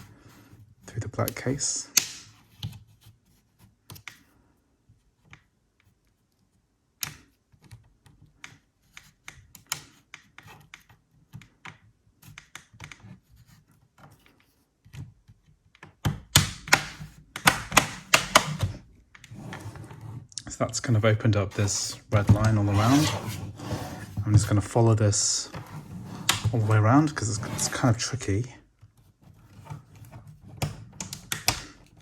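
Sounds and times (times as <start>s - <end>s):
plastic tool prying laptop case: 15.0s - 19.3s, 29.5s - 32.0s
case clips snapping loose: 16.3s - 18.8s, 30.6s - 31.8s.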